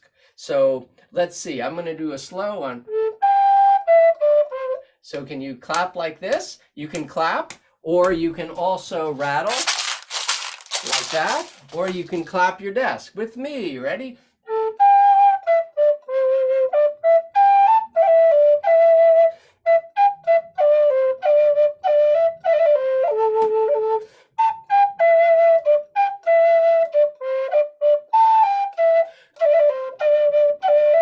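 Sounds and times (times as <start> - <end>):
flute playing slow tune: 2.8 - 4.9, 14.5 - 31.0.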